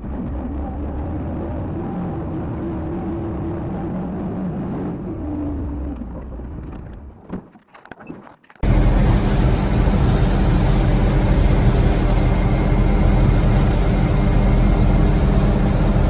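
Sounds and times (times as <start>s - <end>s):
heavy engine running: 8.6s - 16.0s
vehicle engine running: 8.6s - 16.0s.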